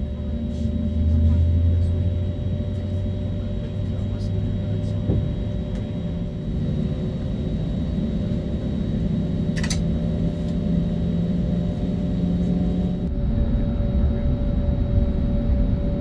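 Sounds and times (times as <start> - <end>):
airliner cabin rumble: 0.0 - 16.0
brief click: 9.6 - 9.8.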